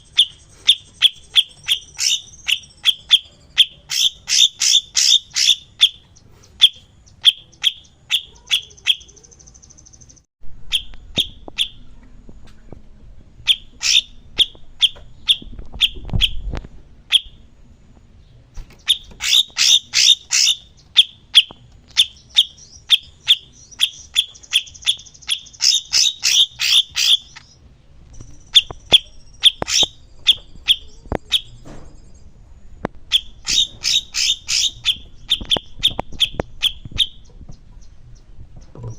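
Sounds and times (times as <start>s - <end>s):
buzzy rattling bird trill: 0.0s - 11.8s, 13.4s - 16.5s, 18.7s - 27.6s, 28.2s - 32.3s, 33.1s - 38.0s
songbird chirping: 0.0s - 38.9s.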